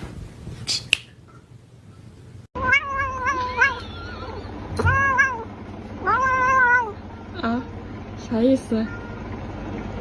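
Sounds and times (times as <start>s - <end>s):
cat meowing: 2.6s - 7.0s.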